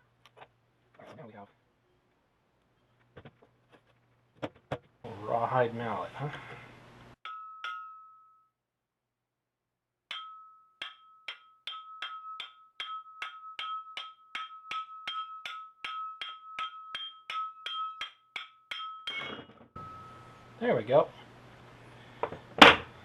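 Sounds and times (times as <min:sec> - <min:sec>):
mallet tapping on metal casing: 0:07.3 - 0:08.3, 0:10.1 - 0:20.1.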